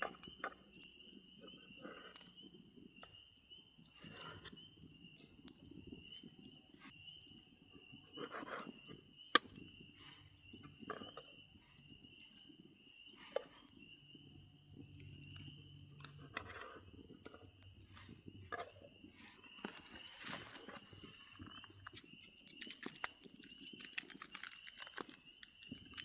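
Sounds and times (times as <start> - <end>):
rustling of small objects: 17.8 - 26.0.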